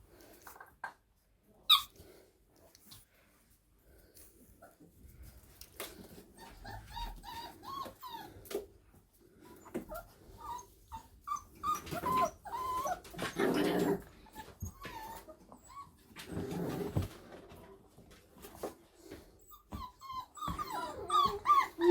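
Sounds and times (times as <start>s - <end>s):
puppies squealing and whimpering: 1.7s - 2.0s, 6.4s - 8.4s, 9.6s - 16.6s, 19.4s - 21.9s
puppies growling: 9.6s - 17.3s, 19.8s - 21.9s.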